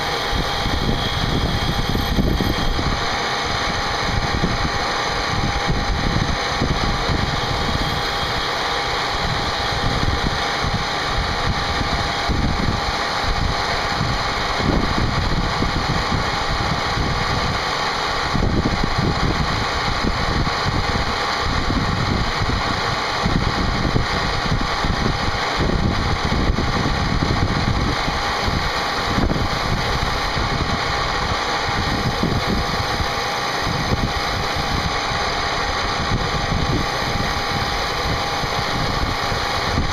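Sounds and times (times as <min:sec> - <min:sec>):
milling machine spindle whine: 0:00.0 - 0:39.9
rough cutting noise: 0:06.4 - 0:12.3.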